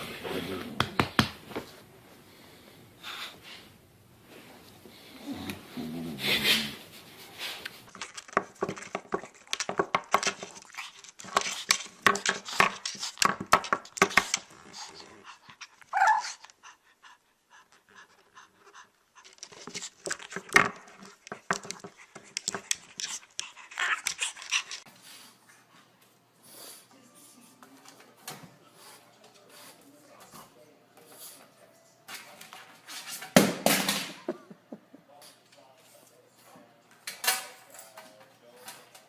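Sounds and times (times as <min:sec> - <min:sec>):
dog panting: 0:14.4 - 0:19.9.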